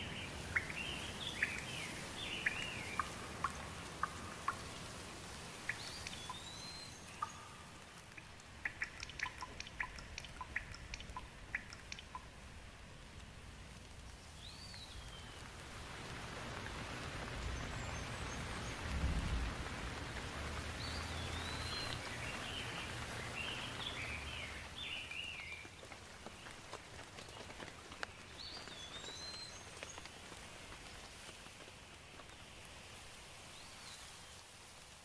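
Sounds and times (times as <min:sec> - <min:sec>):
chirping bird calls: 0:00.0 - 0:04.9
steady rain falling: 0:00.0 - 0:35.0.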